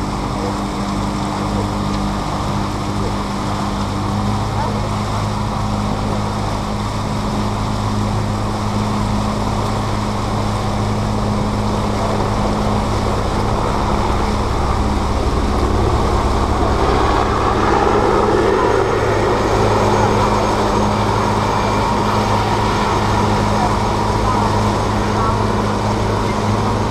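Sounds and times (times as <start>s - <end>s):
motorboat engine humming: 0.0s - 26.9s
rushing noise: 9.8s - 26.9s.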